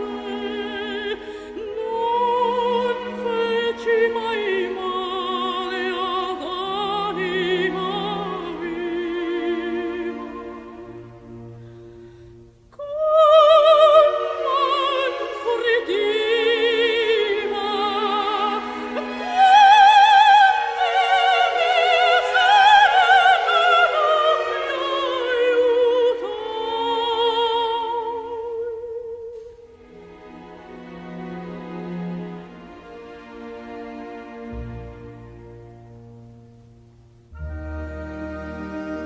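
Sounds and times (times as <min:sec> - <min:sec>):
soprano singing opera: 0:00.0 - 0:11.5, 0:12.7 - 0:29.8
orchestral accompaniment: 0:29.8 - 0:39.0.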